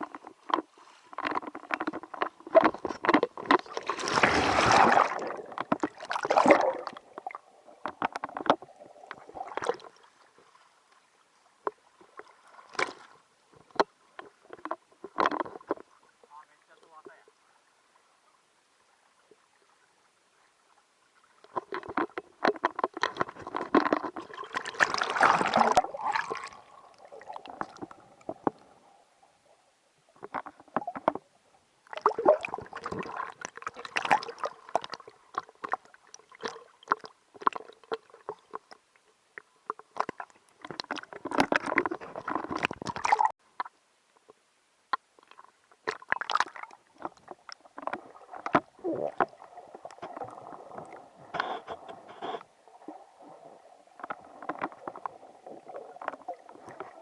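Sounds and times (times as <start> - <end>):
muffled water sloshing: 0.0 - 17.9, 21.1 - 43.7.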